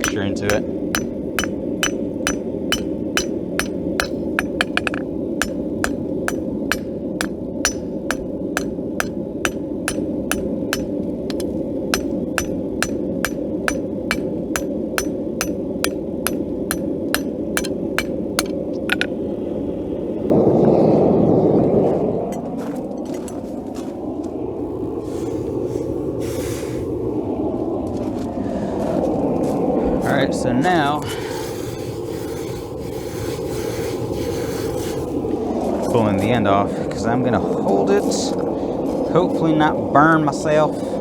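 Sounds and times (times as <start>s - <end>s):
hammer striking steel on anvil: 0.0s - 19.2s.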